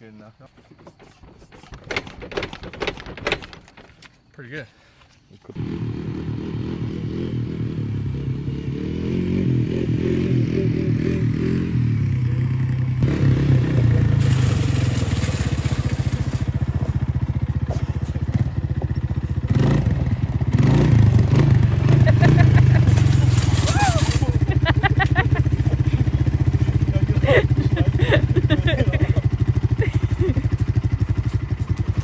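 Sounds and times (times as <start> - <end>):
hissing and scraping: 0.4 - 4.2, 13.8 - 19.5, 22.0 - 32.0
atv engine running: 5.5 - 32.0.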